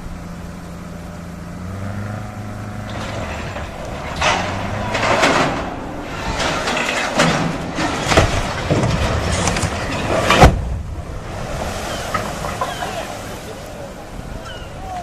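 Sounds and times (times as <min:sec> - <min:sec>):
heavy machine engine running: 0:00.0 - 0:11.6
loud rough noise bursts: 0:01.3 - 0:12.6.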